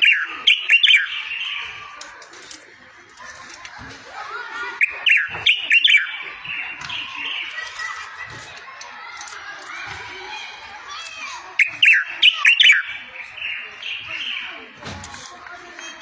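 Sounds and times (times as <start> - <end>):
songbird warbling: 0.0 - 1.7, 4.8 - 7.4, 11.6 - 14.5.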